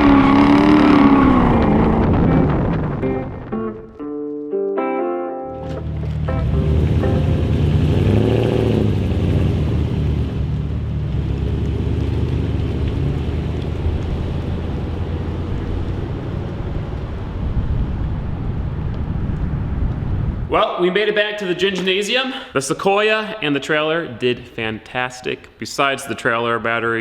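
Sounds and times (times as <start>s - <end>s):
vehicle engine and road rumble: 0.0s - 4.0s, 5.5s - 20.5s.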